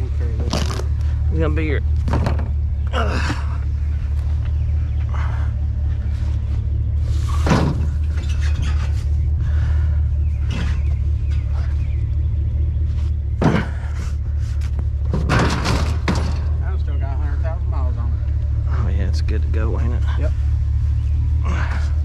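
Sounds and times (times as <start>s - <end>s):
vehicle engine idling: 0.0s - 22.0s
sharp clunks and knocks: 1.8s - 2.9s, 7.3s - 9.1s, 10.4s - 11.7s, 13.3s - 16.6s.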